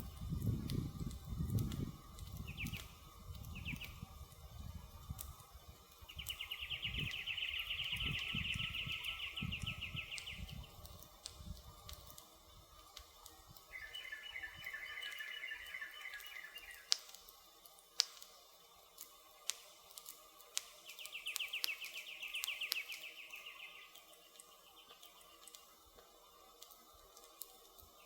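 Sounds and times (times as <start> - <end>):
flame rumbling: 0.0 - 14.9
campfire crackling and popping: 0.0 - 28.0.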